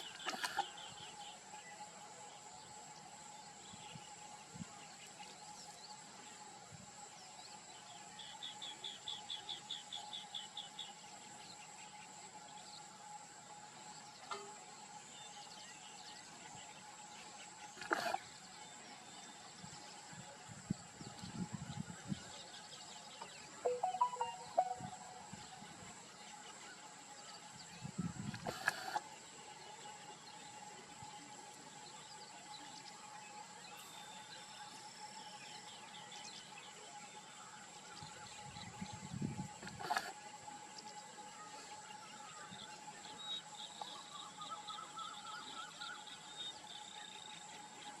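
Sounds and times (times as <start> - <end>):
bird chirping: 23.6 - 25.5.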